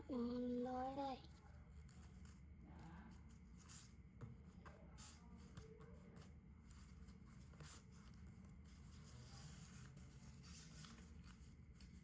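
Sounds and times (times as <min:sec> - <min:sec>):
low background hum: 0:00.0 - 0:12.0
paper being folded: 0:06.2 - 0:12.0.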